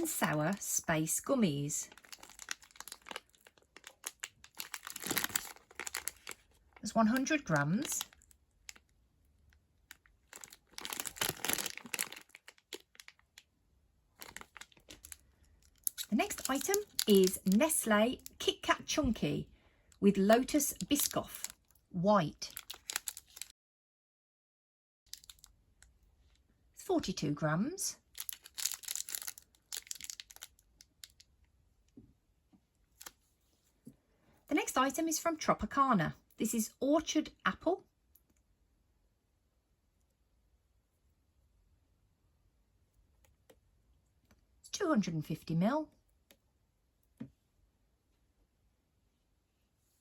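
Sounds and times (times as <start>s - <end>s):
plastic packaging crinkling: 1.8s - 8.9s, 9.8s - 13.5s, 14.1s - 18.6s, 22.5s - 23.5s, 25.1s - 25.5s, 28.0s - 31.3s.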